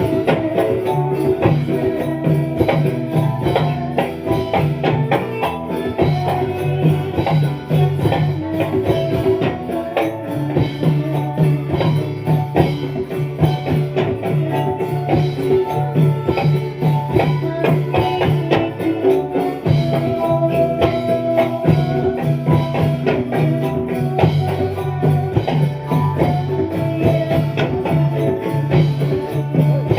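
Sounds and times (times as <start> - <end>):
frame drums: 0.0 - 29.9
held melodic tones: 0.0 - 29.9
jingling percussion: 0.0 - 29.9.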